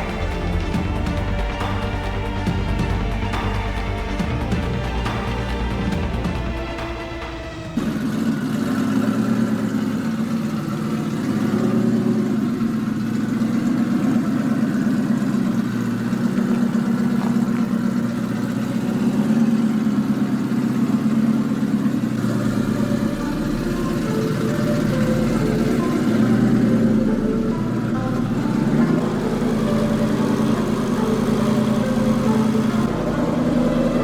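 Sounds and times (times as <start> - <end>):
truck engine idling: 0.0 - 34.0.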